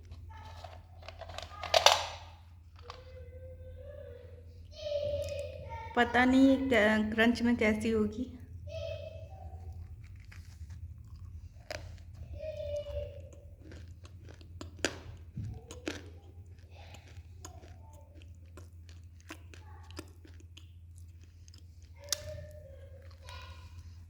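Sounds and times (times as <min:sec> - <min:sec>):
person chewing: 0:00.0 - 0:01.7, 0:09.6 - 0:24.0
dry crunching clicks: 0:00.0 - 0:03.1
steady low hum: 0:00.0 - 0:24.0.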